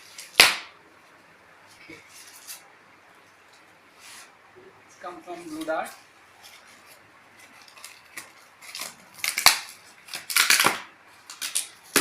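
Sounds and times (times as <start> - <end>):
packaging crackling and ripping: 7.4 - 12.0.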